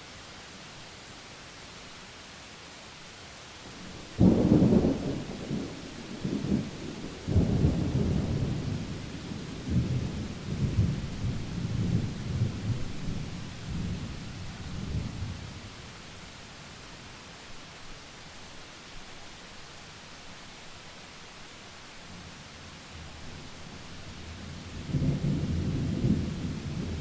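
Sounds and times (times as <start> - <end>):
steady rain: 0.0 - 27.0
thunder rumbling: 3.8 - 14.2, 24.7 - 27.0.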